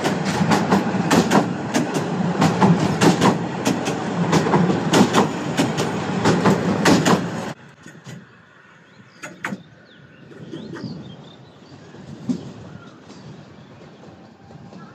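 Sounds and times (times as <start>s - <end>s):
train wheels clacking on rail joints: 0.0s - 8.3s
outdoor ambience: 0.0s - 14.9s.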